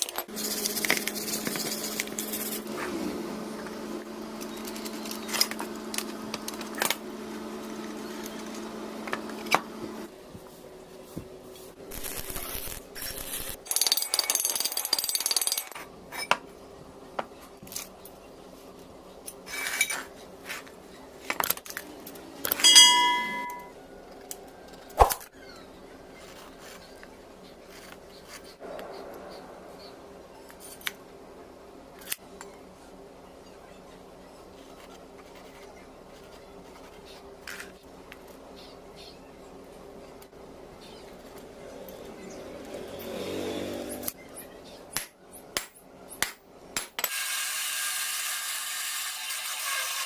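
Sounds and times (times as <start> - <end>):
clinks of metal parts and tools: 22.5 - 23.7
metal scraping: 22.6 - 23.7
struck metal ringing: 22.6 - 23.7.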